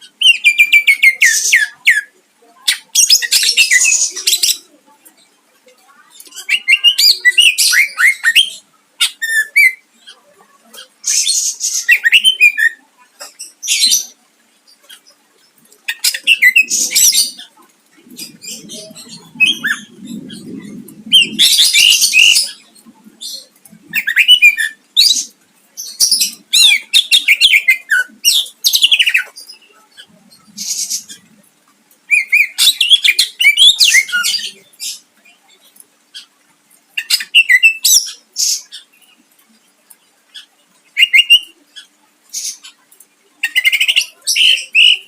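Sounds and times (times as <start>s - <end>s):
bird singing and chattering: 0.0s - 5.2s, 5.8s - 31.4s, 32.1s - 36.3s, 36.9s - 45.0s
low rumbling noise: 18.0s - 24.0s.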